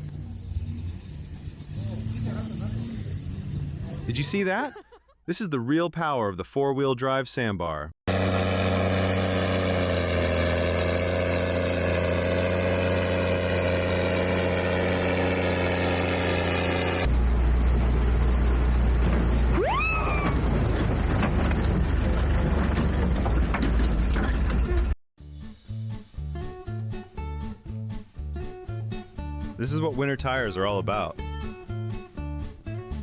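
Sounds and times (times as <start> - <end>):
rough rumble of engine and tyres: 0.0 - 4.3, 8.1 - 25.0
vehicle engine running: 0.0 - 4.3, 8.1 - 25.0.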